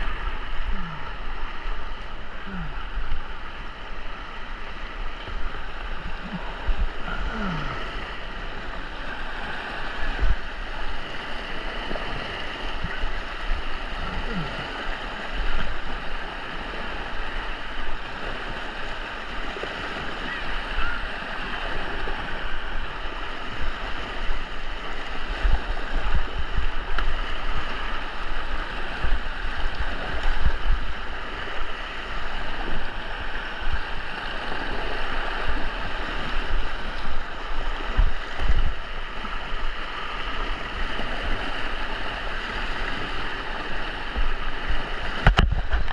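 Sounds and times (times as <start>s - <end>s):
white water rushing: 0.0s - 45.9s.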